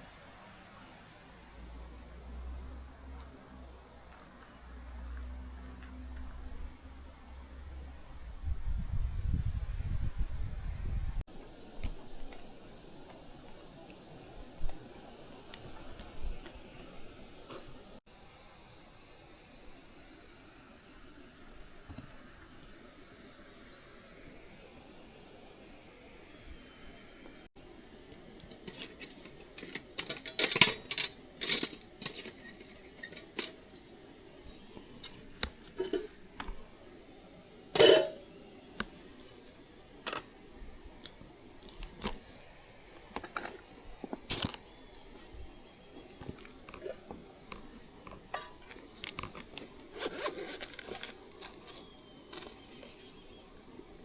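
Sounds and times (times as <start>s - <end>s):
clattering clunk with ring: 28.5s - 33.9s, 35.8s - 36.1s, 37.8s - 38.2s
clicks knocks and scrapes: 28.5s - 33.9s.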